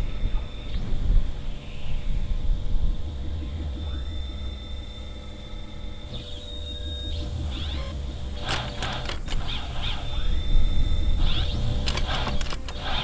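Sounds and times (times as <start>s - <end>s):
crackling clicks: 6.1s - 13.0s.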